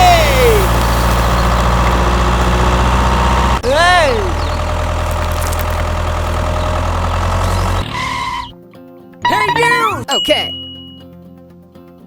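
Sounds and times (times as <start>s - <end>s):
tractor engine idling: 0.0s - 8.5s
short voice cry: 9.2s - 10.5s.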